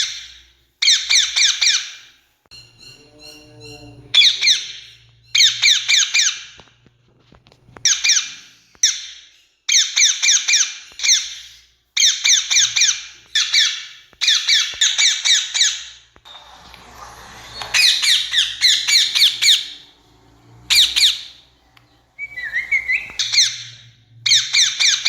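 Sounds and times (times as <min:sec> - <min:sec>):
parakeet screeching calls: 0:02.6 - 0:06.5, 0:17.2 - 0:25.0.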